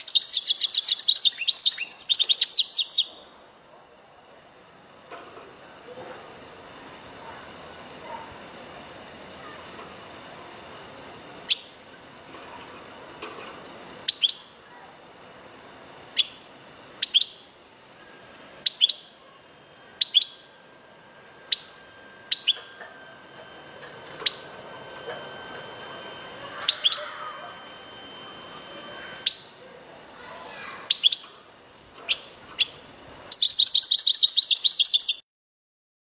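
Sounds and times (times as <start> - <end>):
goldfinch chirping: 0.0 - 3.2, 20.0 - 20.5, 21.5 - 22.7, 24.2 - 24.5, 26.6 - 27.6, 30.9 - 31.3, 32.1 - 35.2.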